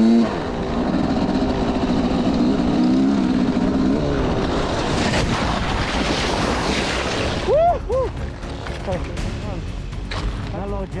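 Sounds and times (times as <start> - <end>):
motorcycle engine running: 0.0 - 4.6
wind and road noise: 0.0 - 11.0.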